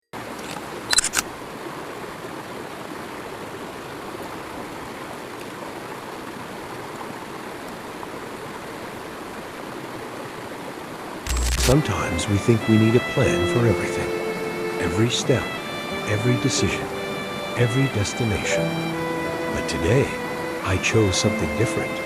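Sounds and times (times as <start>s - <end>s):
flowing water rushing: 0.2s - 22.0s
sharp clicks: 11.3s - 11.8s.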